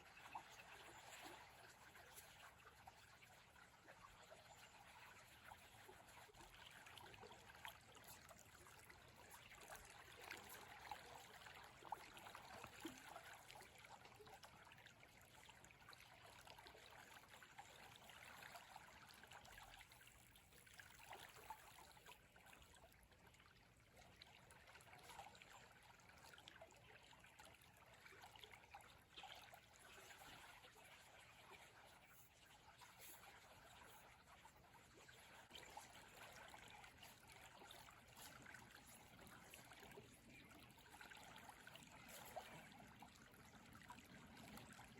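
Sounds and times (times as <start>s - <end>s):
stream babbling: 30.3s - 44.9s.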